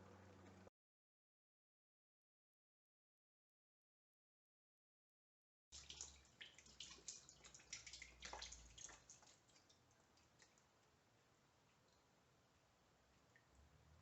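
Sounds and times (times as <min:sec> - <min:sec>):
water dripping into a bucket: 0:05.8 - 0:14.0.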